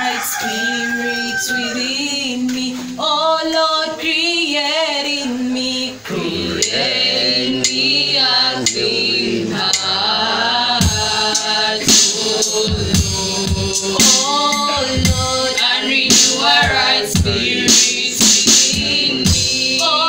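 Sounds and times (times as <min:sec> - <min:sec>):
group singing with vibrato: 0:00.0 - 0:20.0
sharp percussion strikes: 0:10.8 - 0:20.0.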